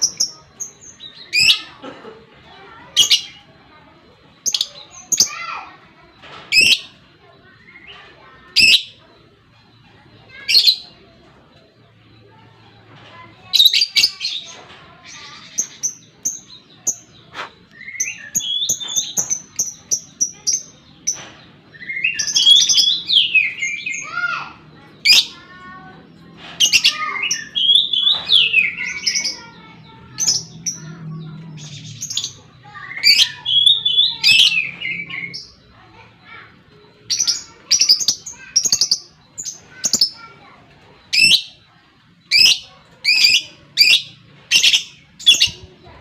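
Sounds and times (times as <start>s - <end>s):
faint bird chatter: 0.0s - 46.0s
lovebird chirping: 13.1s - 46.0s.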